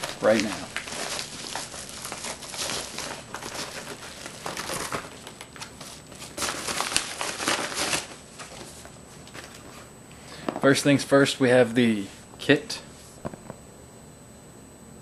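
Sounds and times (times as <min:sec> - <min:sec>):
packaging rustling and crinkling: 0:00.0 - 0:09.9
handling noises: 0:00.0 - 0:10.7.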